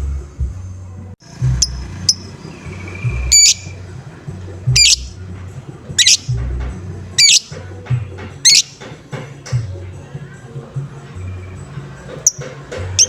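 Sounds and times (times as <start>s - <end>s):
background music beat: 0.0s - 13.0s
lovebird harsh calls: 1.3s - 4.0s, 4.6s - 5.3s, 5.9s - 6.5s, 7.1s - 7.6s, 8.4s - 8.9s.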